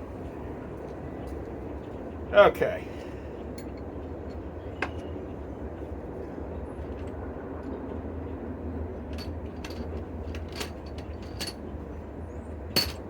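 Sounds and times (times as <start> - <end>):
low background hum: 0.0 - 13.0
metal parts clinking: 9.1 - 11.6, 12.7 - 13.0.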